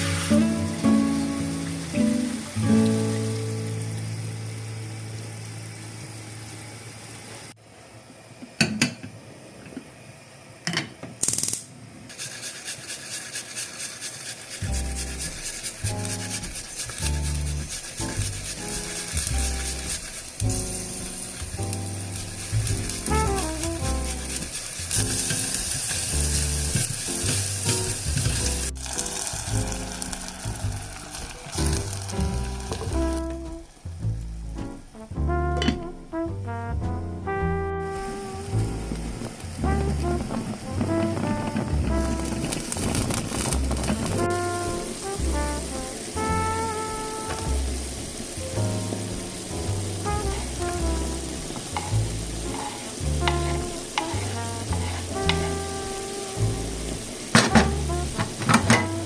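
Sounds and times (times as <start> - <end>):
soft background music: 0.0 - 4.1, 15.9 - 42.7, 43.6 - 59.0
food sizzling in a pan: 0.0 - 7.6, 12.1 - 36.1, 37.8 - 59.0.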